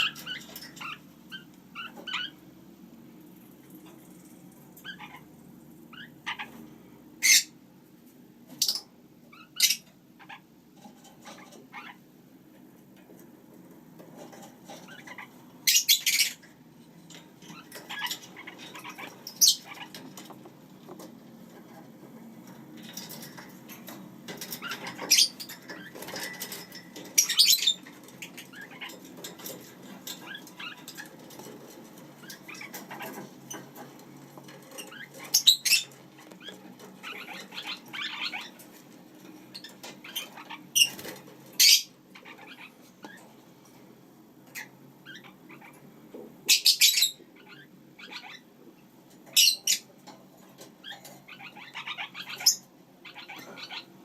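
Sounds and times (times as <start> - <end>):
soft bird chirping: 0.0 - 2.4, 3.5 - 7.6, 8.5 - 10.5, 14.4 - 20.5, 22.9 - 31.4, 32.1 - 43.3, 44.4 - 48.5, 49.3 - 49.9, 50.8 - 54.0
parakeets squawking: 0.0 - 2.5, 4.6 - 7.6, 8.5 - 10.5, 11.2 - 12.1, 14.2 - 21.9, 22.5 - 43.3, 44.4 - 48.5, 49.2 - 49.9, 50.5 - 54.0.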